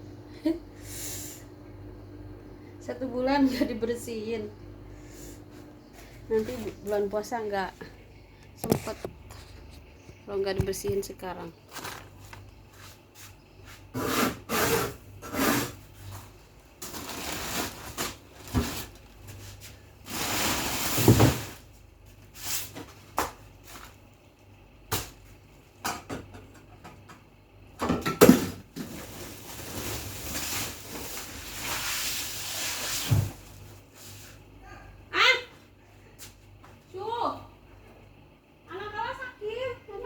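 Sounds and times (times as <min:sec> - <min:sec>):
items knocking and clattering: 0:10.5 - 0:12.5, 0:27.8 - 0:31.4.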